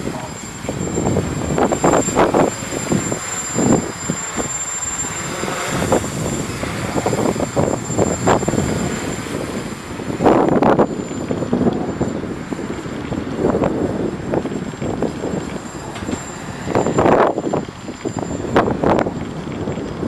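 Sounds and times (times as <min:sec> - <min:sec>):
quadcopter motors buzzing: 0:00.0 - 0:20.0
wind buffeting microphone: 0:00.0 - 0:20.0.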